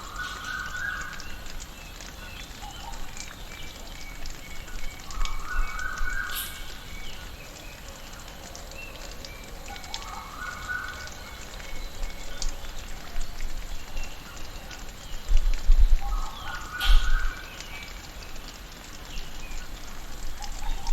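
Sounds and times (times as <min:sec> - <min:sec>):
birds calling: 0:16.0 - 0:18.1.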